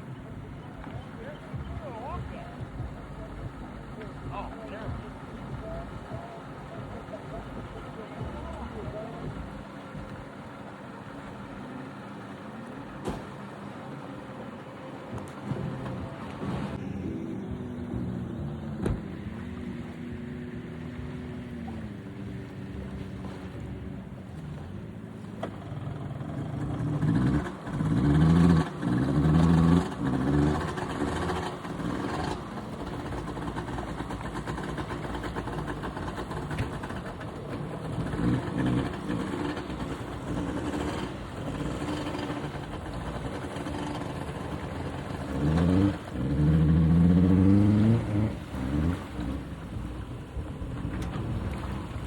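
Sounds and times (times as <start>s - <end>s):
engine revving: 15.2s - 52.0s.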